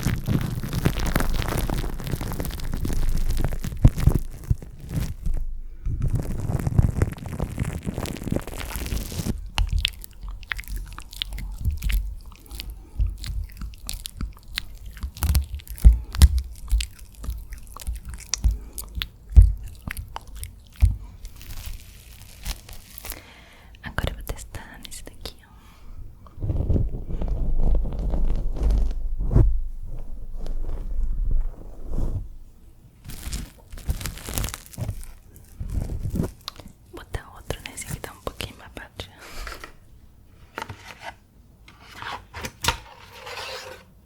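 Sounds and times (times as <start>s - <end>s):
mouth clicks and pops: 0.0s - 25.3s, 33.1s - 38.4s
moist mouth crackling: 0.0s - 25.5s, 33.0s - 39.2s.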